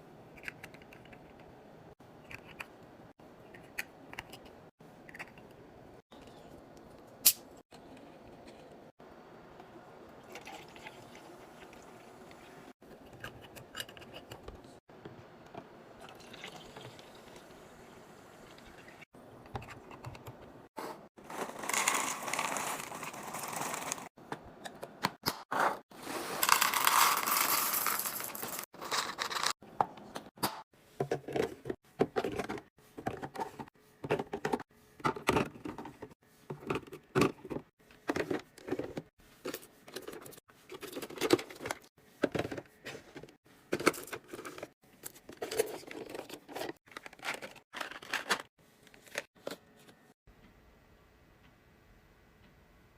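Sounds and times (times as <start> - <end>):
liquid pouring into containers: 10.2 - 12.6, 16.0 - 17.5.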